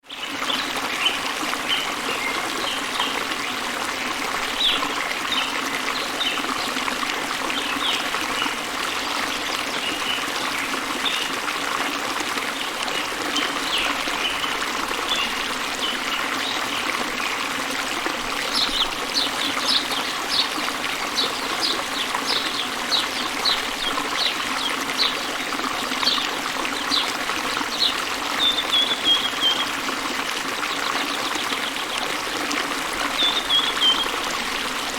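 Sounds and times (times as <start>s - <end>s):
small birds chirping: 18.5s - 25.2s, 33.0s - 34.6s.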